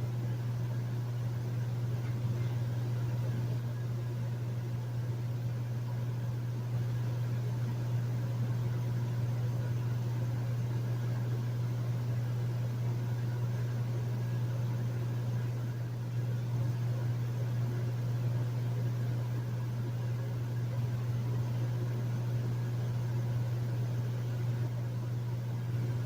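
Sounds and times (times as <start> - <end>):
air conditioner humming: 0.0 - 26.0.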